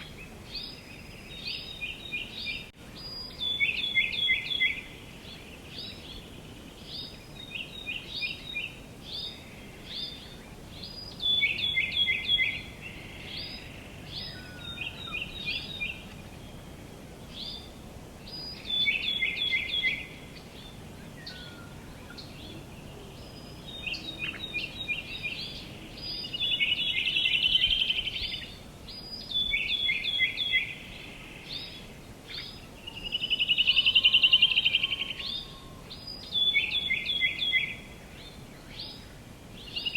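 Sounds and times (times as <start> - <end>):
low background noise: 0.0 - 39.9
songbirds chirping and singing: 0.0 - 39.9.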